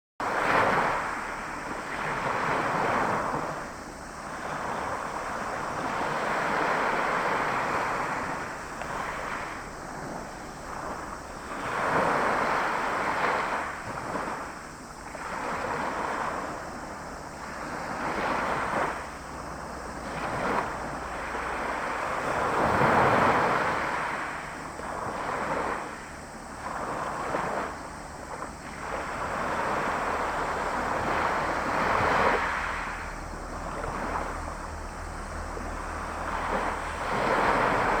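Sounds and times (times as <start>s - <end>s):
waves breaking on a beach: 0.2s - 38.0s.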